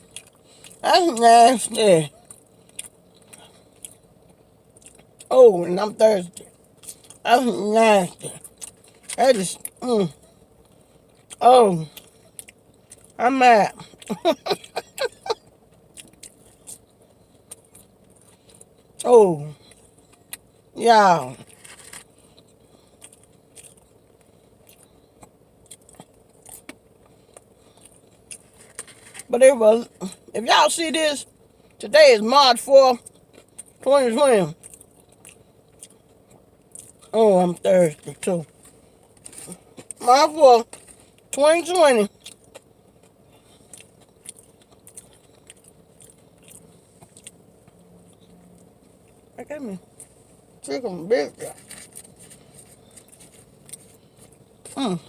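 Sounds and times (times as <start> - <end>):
person chewing food: 0.0 - 0.8, 2.1 - 5.3, 6.4 - 7.2, 8.3 - 19.0, 21.4 - 29.3, 33.0 - 33.8, 34.6 - 37.1, 42.1 - 50.2, 51.5 - 55.0.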